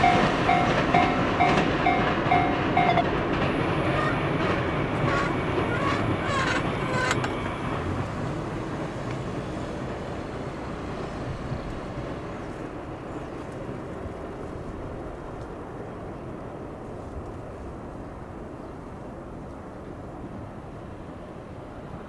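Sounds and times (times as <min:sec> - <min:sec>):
sharp clanks: 0:00.0 - 0:07.7
electric train rumble: 0:00.0 - 0:19.4.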